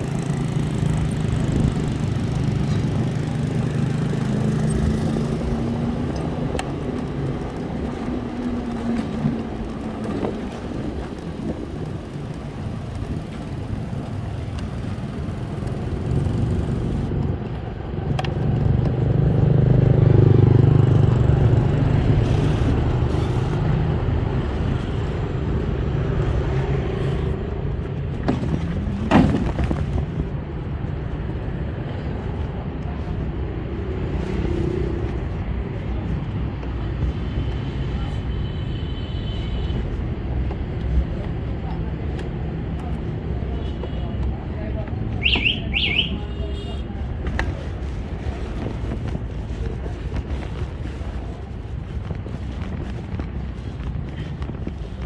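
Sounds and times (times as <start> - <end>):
small vehicle engines running: 0.0 - 30.3
road traffic: 0.0 - 55.0.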